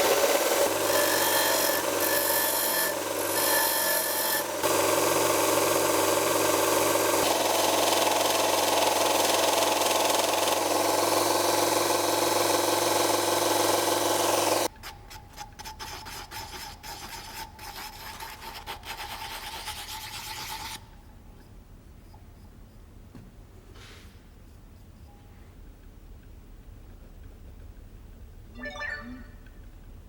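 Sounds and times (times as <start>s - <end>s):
motor hum: 0.0s - 14.7s
motorized tool rasping: 0.0s - 14.7s.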